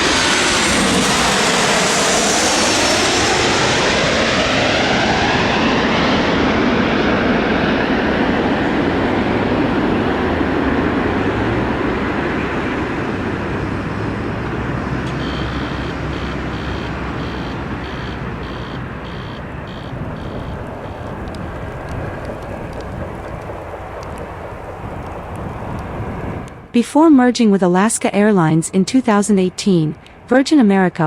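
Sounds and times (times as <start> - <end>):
jet engine roar: 0.0 - 27.0
faint high beeping: 15.0 - 21.3.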